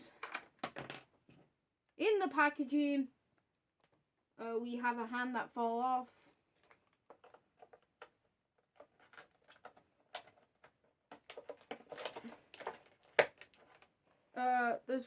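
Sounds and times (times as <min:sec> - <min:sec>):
plastic packaging crinkling: 0:08.7 - 0:13.9.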